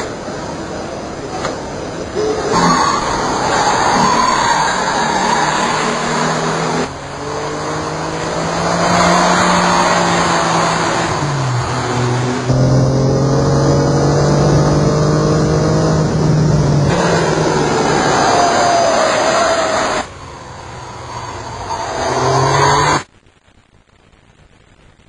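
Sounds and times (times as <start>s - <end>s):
sports car engine racing: 0.0s - 23.1s.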